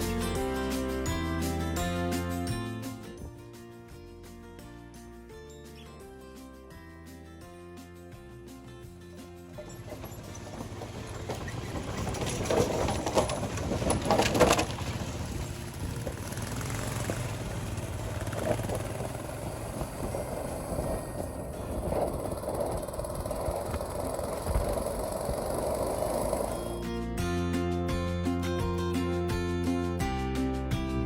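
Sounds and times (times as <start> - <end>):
vehicle engine and road noise: 8.5 - 29.5
loud rough noise: 9.5 - 27.0.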